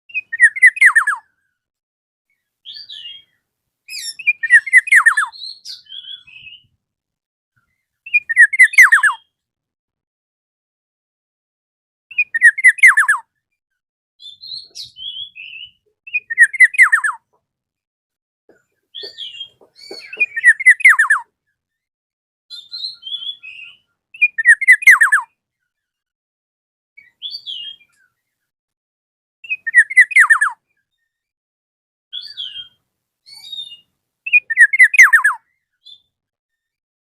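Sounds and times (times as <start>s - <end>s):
bird singing whistled notes: 0.1s - 1.3s, 2.6s - 6.7s, 7.7s - 9.4s, 12.1s - 13.2s, 14.2s - 17.2s, 19.0s - 21.9s, 22.5s - 25.3s, 27.0s - 28.3s, 29.4s - 31.2s, 32.1s - 36.7s.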